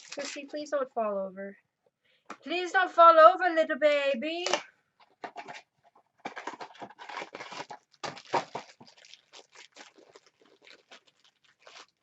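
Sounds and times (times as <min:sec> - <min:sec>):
toy packaging tearing and crinkling: 0:00.0 - 0:00.5, 0:06.2 - 0:12.0.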